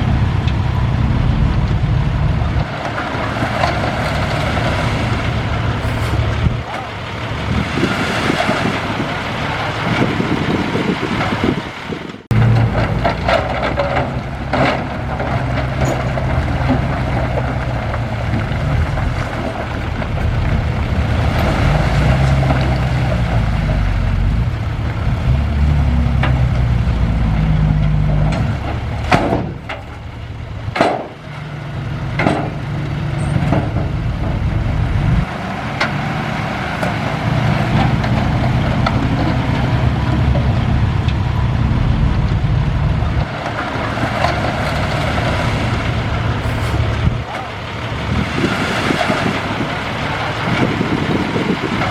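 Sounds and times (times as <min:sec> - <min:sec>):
heavy diesel machinery running: 0:00.0 - 0:51.9
sharp metal clanks and knocks: 0:27.8 - 0:31.2, 0:32.1 - 0:34.4.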